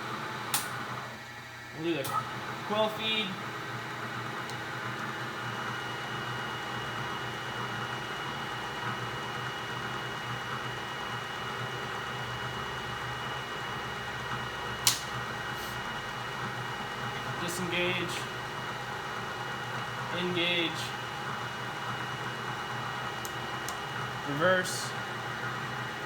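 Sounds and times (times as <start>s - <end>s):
milling machine whine: 0.0s - 26.0s
sharp click: 14.8s - 15.1s.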